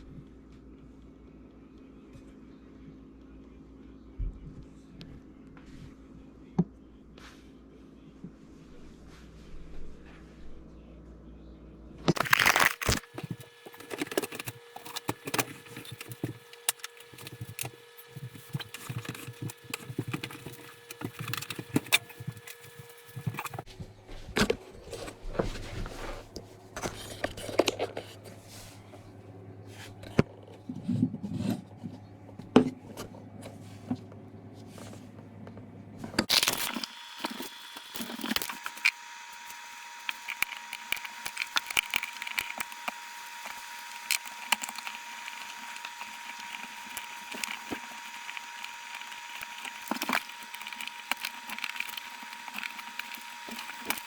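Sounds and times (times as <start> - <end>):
tools and parts clicking and scraping: 12.1 - 23.7.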